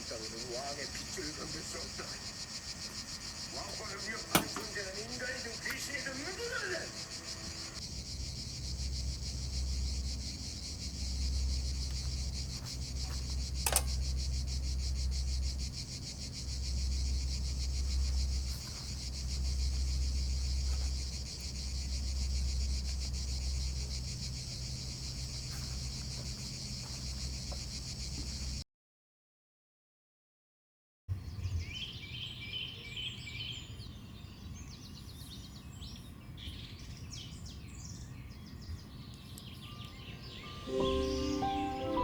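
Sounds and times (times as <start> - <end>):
insects buzzing: 0.0 - 28.6, 37.1 - 42.0
sharp click: 4.2 - 4.9, 13.6 - 14.0.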